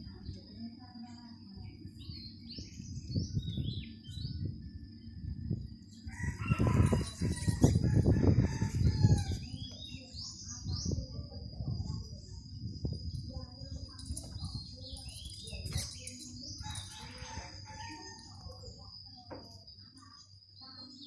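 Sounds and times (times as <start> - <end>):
rooster crowing: 6.1 - 9.4, 16.6 - 18.3.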